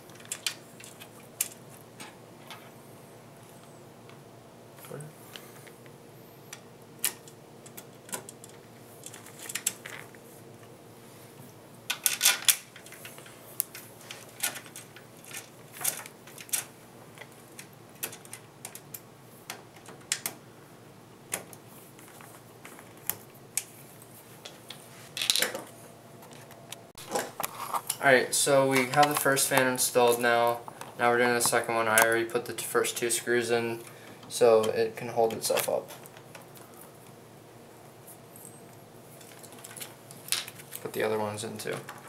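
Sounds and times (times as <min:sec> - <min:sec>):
screws clicking and clattering: 0:11.9 - 0:16.7.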